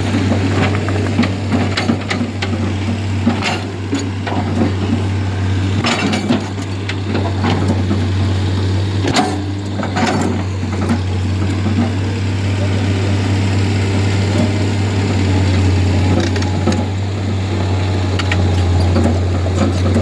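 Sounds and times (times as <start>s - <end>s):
heavy engine droning: 0.0s - 20.0s
sharp knocks and clanks: 5.8s - 12.0s.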